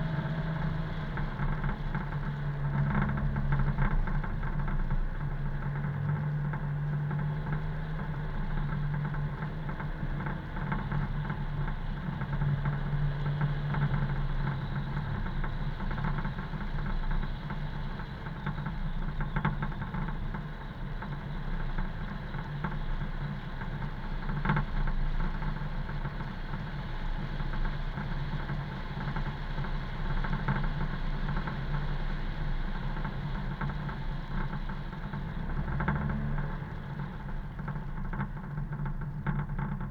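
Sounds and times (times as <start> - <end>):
road noise: 0.0 - 4.2, 31.0 - 38.7.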